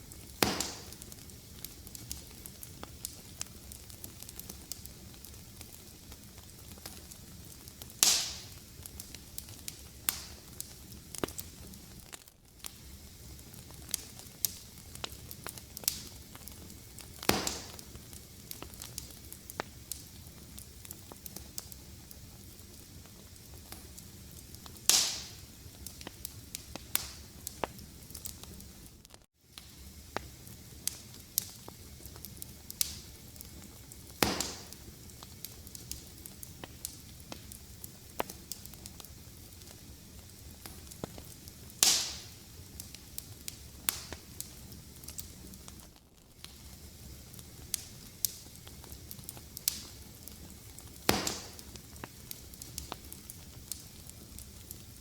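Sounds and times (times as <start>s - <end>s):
loud fire pops: 0.0s - 55.0s
wood fire crackling: 0.0s - 55.0s.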